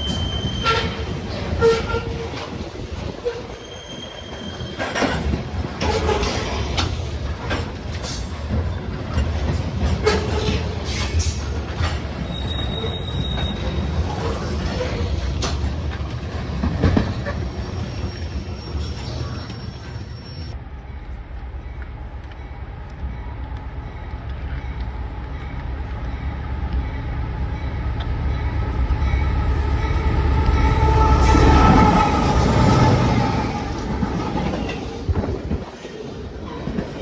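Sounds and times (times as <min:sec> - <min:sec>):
wheel squeals: 0:00.0 - 0:06.8, 0:09.5 - 0:20.6
freight train cars rumbling: 0:00.0 - 0:37.0
train cars clanking: 0:00.0 - 0:37.0.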